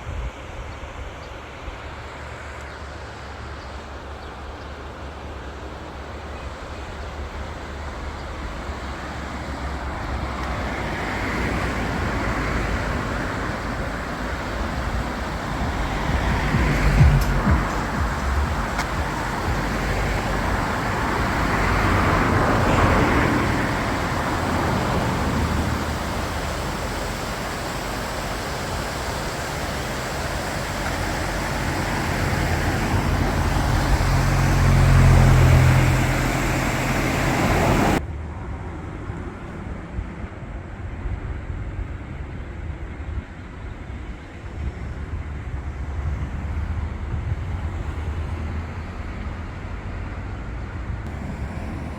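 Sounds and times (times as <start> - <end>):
vehicles passing: 1.8 - 40.6, 44.2 - 51.9
low rumble: 14.8 - 23.9.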